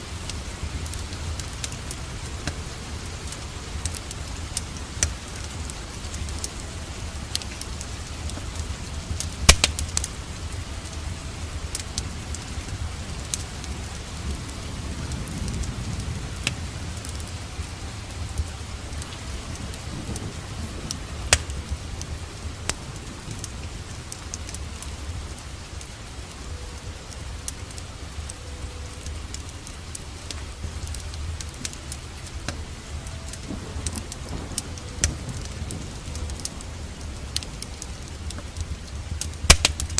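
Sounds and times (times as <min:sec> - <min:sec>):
steady rain: 0:00.0 - 0:39.9
wood fire crackling and popping: 0:00.0 - 0:39.9.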